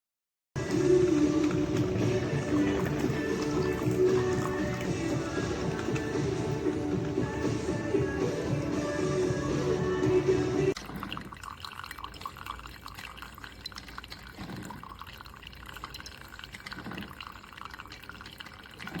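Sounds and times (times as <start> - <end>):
background music: 0.6 - 10.8
liquid trickling and dripping: 0.6 - 19.0.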